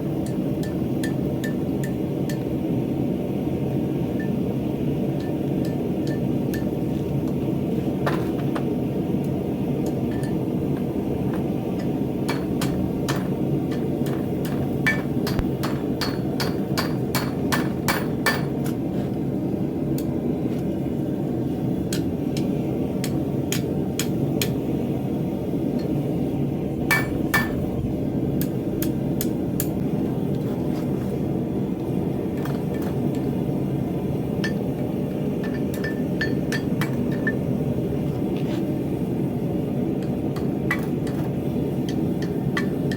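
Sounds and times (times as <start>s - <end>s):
hammer striking steel: 0.2s - 2.4s, 11.8s - 18.6s, 26.9s - 27.6s, 35.4s - 37.4s
steady low rumble: 8.7s - 42.9s.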